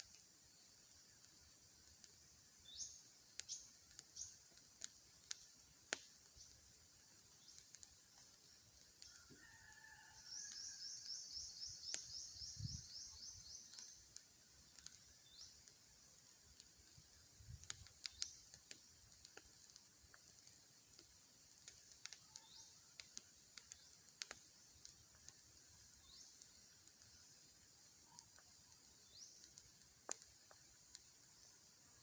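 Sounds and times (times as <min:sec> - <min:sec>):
sharp clicks: 0:17.6 - 0:25.4.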